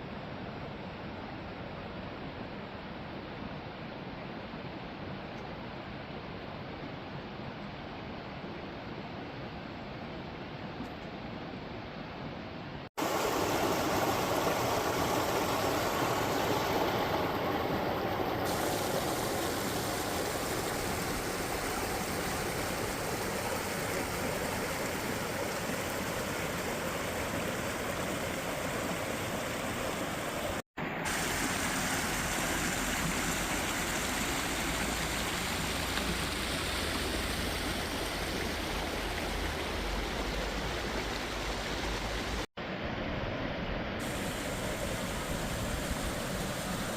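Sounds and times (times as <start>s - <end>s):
waterfall rushing: 13.0s - 42.5s, 44.0s - 46.9s.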